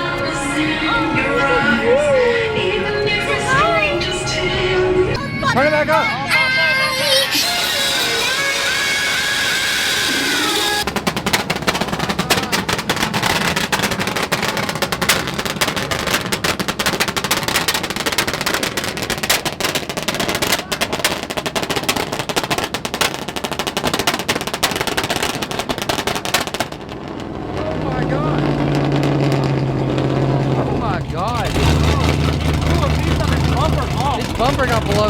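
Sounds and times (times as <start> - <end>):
music playing: 0.0 - 10.8
truck engine revving with exhaust pops: 7.7 - 35.0.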